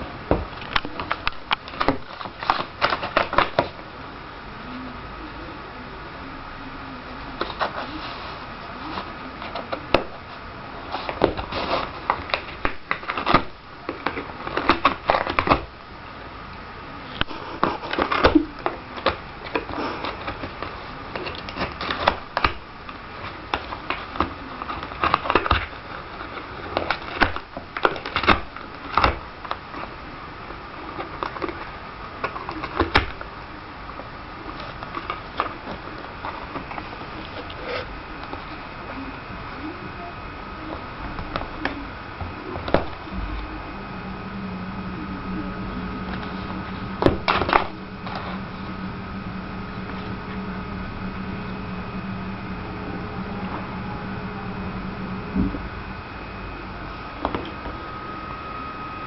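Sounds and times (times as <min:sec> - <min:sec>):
cat scratching crinkly material: 0:07.4 - 0:15.6.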